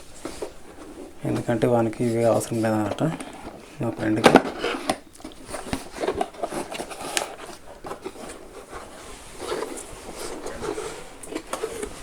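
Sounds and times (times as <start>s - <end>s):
paper and packaging rustling: 0.0s - 12.0s.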